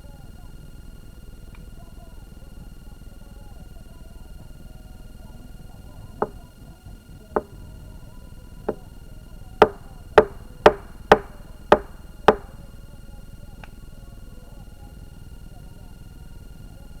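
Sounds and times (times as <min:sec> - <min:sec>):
axe chopping wood: 0:07.4 - 0:07.7, 0:09.6 - 0:12.6.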